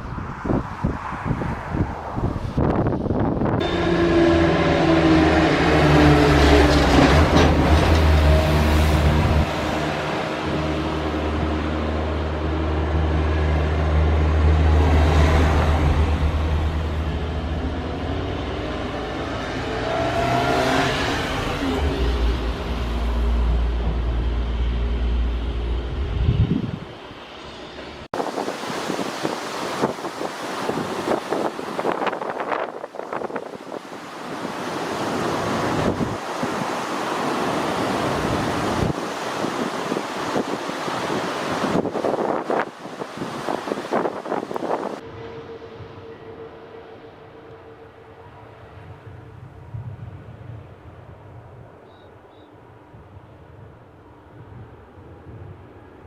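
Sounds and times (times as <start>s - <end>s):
strong wind buffeting microphone: 0.0s - 51.9s, 52.6s - 56.0s
airplane engine: 0.8s - 56.0s
heavy low rumble: 1.6s - 19.9s, 20.6s - 28.1s.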